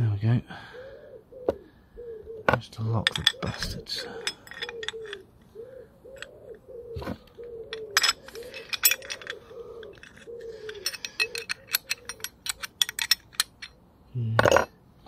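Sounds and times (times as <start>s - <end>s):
bird cooing: 0.6s - 13.1s
metallic clinks of tools: 3.0s - 5.2s, 7.7s - 13.8s.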